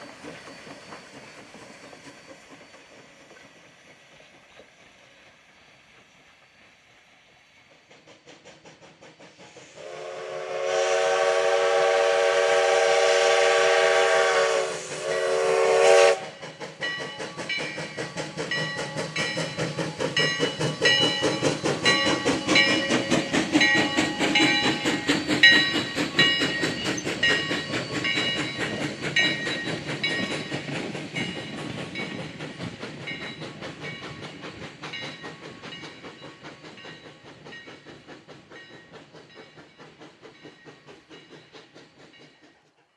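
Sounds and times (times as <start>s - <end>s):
locomotive exhaust beats: 7.9s - 42.6s
steam whistle blasts: 9.7s - 16.4s.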